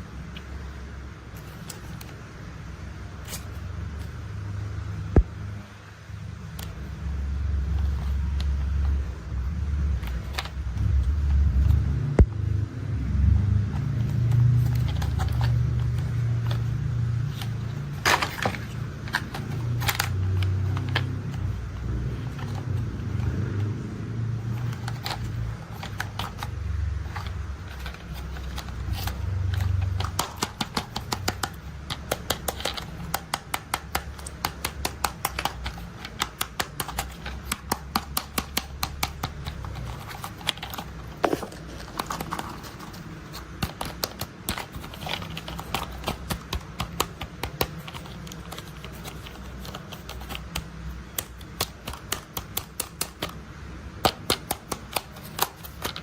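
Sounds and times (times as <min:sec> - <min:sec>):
plastic parts clicking and rattling: 0:10.0 - 0:11.7, 0:13.7 - 0:23.7, 0:24.4 - 0:56.0.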